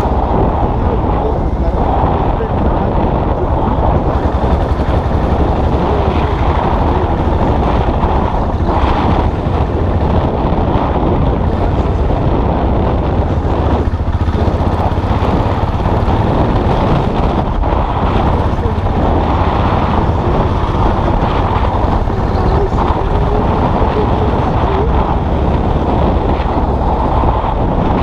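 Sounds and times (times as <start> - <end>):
motorcycle engine running: 0.0 - 28.0
wind noise on microphone: 0.0 - 28.0.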